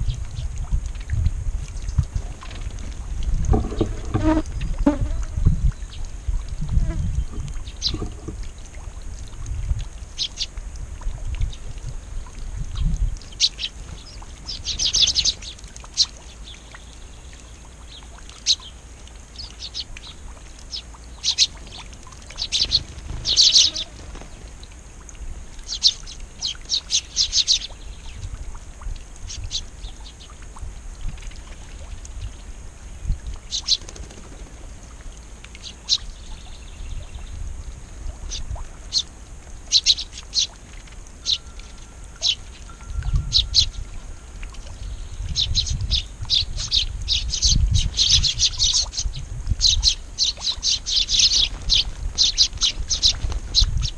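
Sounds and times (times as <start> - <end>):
low rumbling bumps: 0.0 - 5.6, 6.3 - 8.7
songbirds chirping: 5.6 - 9.5, 11.4 - 28.6, 29.2 - 30.6, 31.2 - 53.9.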